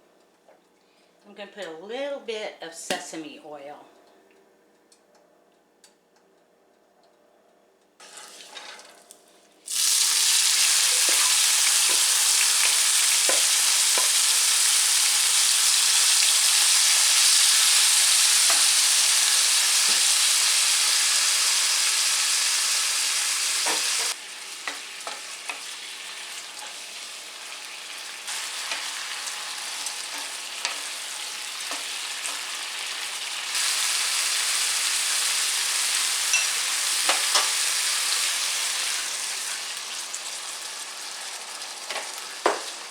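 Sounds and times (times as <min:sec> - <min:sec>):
meat sizzling in hot oil: 0:09.7 - 0:42.9.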